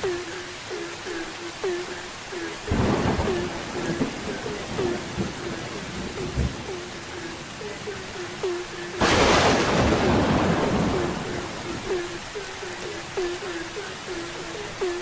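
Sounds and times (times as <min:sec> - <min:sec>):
frogs calling: 0:00.0 - 0:15.0
steady rain: 0:00.0 - 0:15.0
thunder clap: 0:02.7 - 0:12.2.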